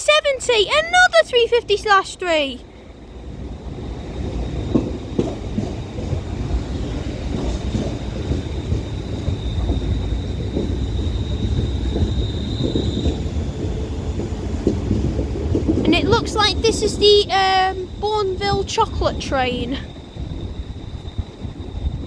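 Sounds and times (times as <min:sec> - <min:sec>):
train rumble: 0:00.0 - 0:22.0
wheels knocking over rail joints: 0:04.6 - 0:19.1
high squeal: 0:06.6 - 0:14.1, 0:17.4 - 0:22.0.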